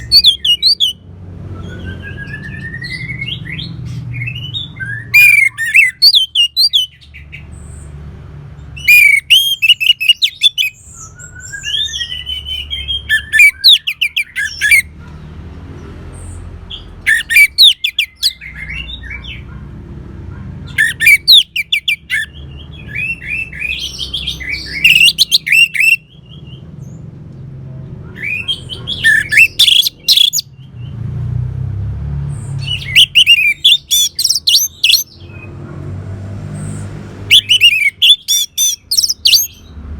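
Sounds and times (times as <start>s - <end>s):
thrush singing: 28.2s - 30.4s, 32.5s - 35.3s, 36.8s - 39.7s.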